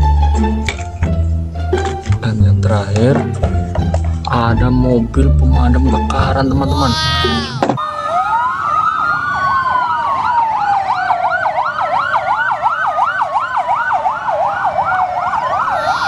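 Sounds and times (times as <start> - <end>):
fire engine siren wailing: 6.8 - 16.0
fire engine siren yelping: 6.8 - 16.0.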